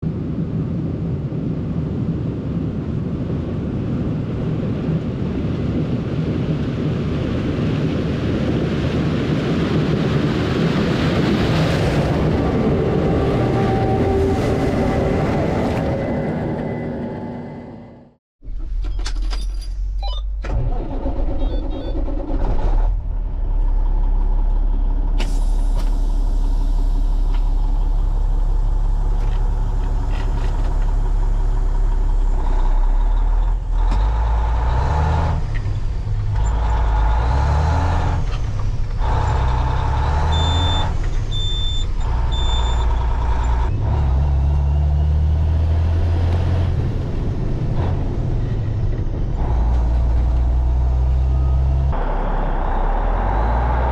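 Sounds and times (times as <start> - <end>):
diesel farm machinery running: 6.2 - 18.1, 20.0 - 53.9
short electronic beeps: 18.9 - 20.4, 40.3 - 43.0.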